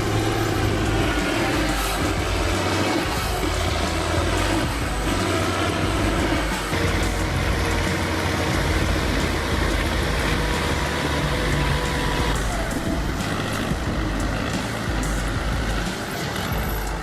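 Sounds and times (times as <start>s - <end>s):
heavy truck engine running: 0.0s - 17.0s
rumble of vehicle noise: 0.0s - 17.0s.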